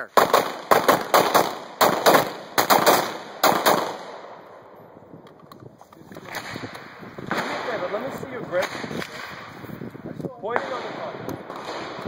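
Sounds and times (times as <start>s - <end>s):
gunshots with echo: 0.1s - 4.4s, 6.2s - 9.6s, 10.5s - 12.0s.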